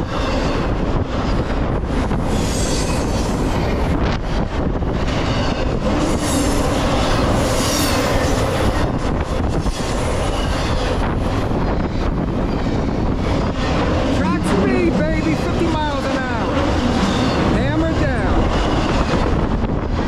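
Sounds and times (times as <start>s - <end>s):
freight train wheels rumbling: 0.0s - 20.0s
high wheel squeal: 2.3s - 3.4s, 5.1s - 10.9s.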